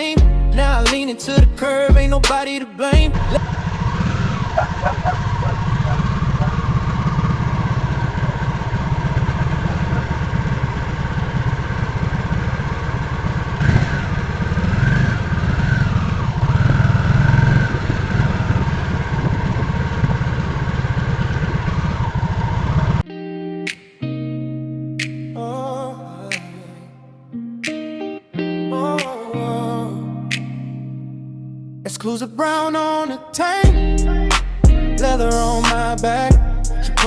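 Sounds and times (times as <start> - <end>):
motorcycle engine rumbling: 3.0 - 23.0, 33.7 - 37.0.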